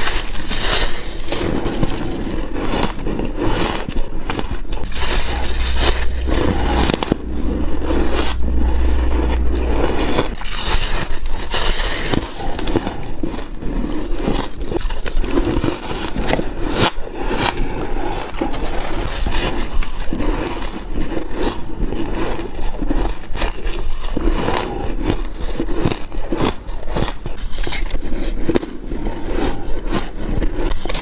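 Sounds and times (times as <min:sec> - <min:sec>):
low rumble: 0:04.0 - 0:13.8.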